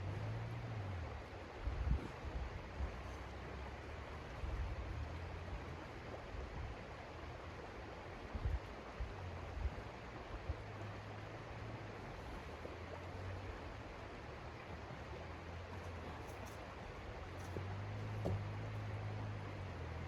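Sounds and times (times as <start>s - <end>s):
dull thumps: 17.3s - 18.9s.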